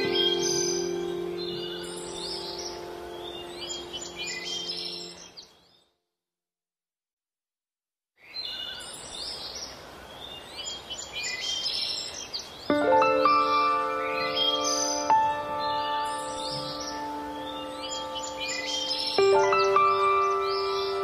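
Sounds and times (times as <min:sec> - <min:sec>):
sustained music notes: 0:00.0 - 0:05.2, 0:12.7 - 0:21.0
birds chirping: 0:00.0 - 0:06.0, 0:08.2 - 0:21.0
outdoor nature ambience: 0:00.0 - 0:06.2, 0:08.2 - 0:21.0.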